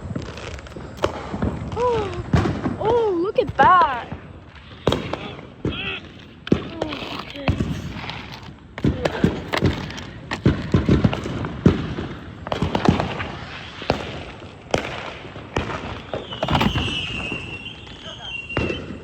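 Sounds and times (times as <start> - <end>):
fireworks bangs and pops: 0.0 - 19.0
wavering high whistle: 16.2 - 19.0.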